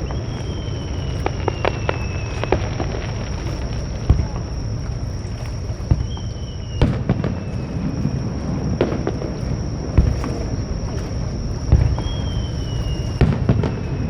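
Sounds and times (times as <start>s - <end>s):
faint high descending whistle: 0.0s - 2.8s, 5.9s - 8.2s, 11.8s - 14.0s
fireworks shells bursting: 0.0s - 14.0s
steady low rumble: 0.0s - 14.0s.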